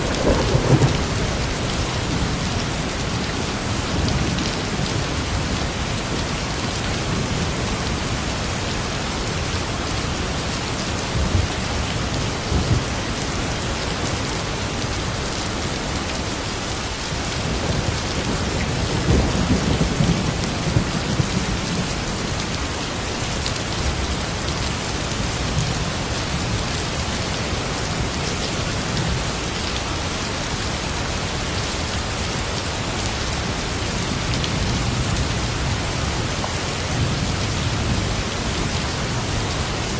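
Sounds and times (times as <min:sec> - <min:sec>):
thunder rumbling: 0:00.0 - 0:06.2
heavy rain falling: 0:00.0 - 0:39.9.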